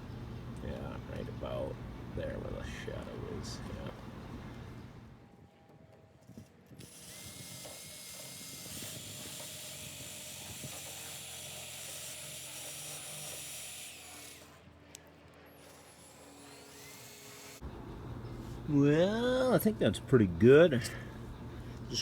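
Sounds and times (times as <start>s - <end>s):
power tool grinding with whine: 6.7s - 14.7s, 15.5s - 17.6s.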